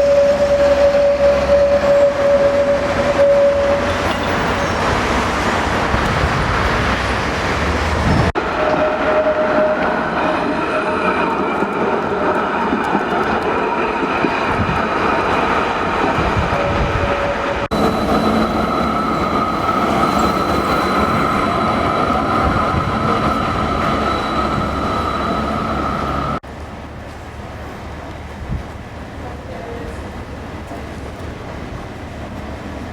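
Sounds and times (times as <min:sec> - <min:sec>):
streetcar rolling on rails: 0:00.0 - 0:32.9
steady high-pitched tone: 0:16.6 - 0:26.4.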